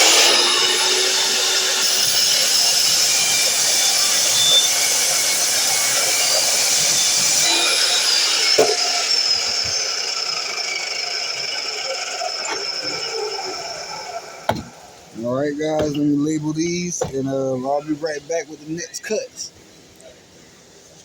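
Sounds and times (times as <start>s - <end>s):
miter saw motor whining: 0.0s - 15.2s.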